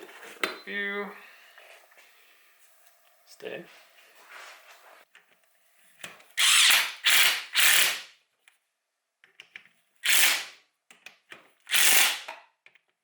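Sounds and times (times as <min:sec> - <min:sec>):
ratchet wrench ratcheting: 0:06.4 - 0:08.1, 0:10.0 - 0:10.6, 0:11.7 - 0:12.3.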